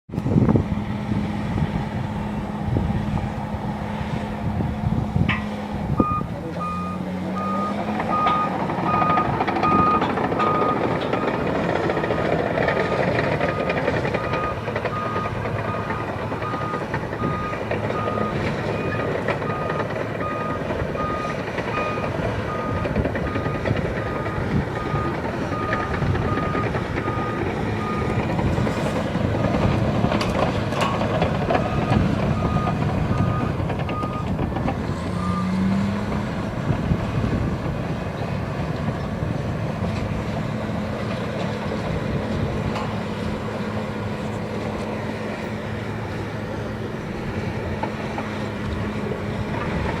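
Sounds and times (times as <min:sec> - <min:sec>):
dozer diesel engine running: 0:00.1 - 0:50.0
reversing alarm beeping: 0:06.0 - 0:28.3, 0:31.6 - 0:34.3.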